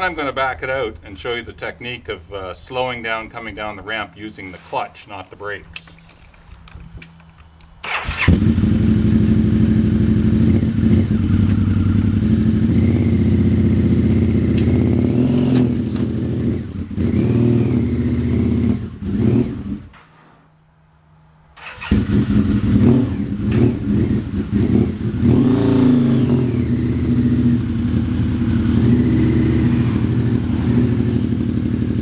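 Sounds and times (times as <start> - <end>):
motorcycle engine running rough: 8.0 - 19.9, 21.7 - 32.0.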